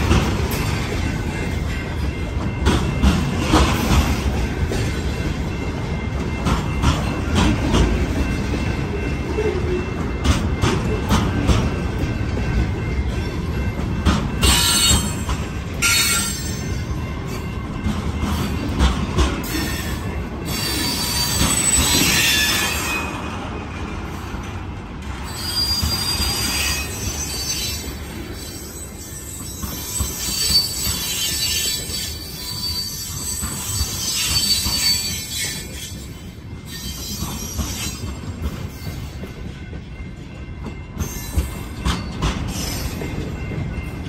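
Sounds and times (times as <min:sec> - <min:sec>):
train wheels rumbling on rail: 0:00.0 - 0:44.0
high-pitched wheel squeal: 0:25.2 - 0:27.8, 0:28.4 - 0:35.9.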